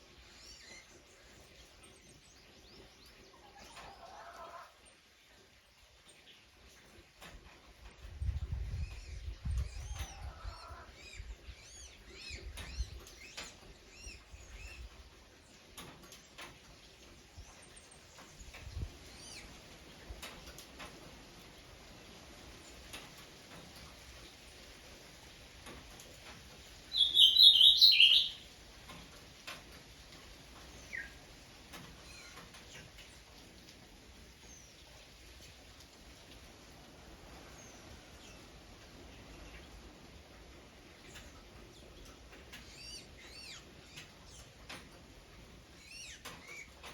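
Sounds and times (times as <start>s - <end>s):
small birds chirping: 0.0s - 4.1s, 26.8s - 28.6s, 30.6s - 33.4s, 37.4s - 46.9s
bird singing high notes: 27.0s - 28.4s
faint short bird call: 27.0s - 28.4s.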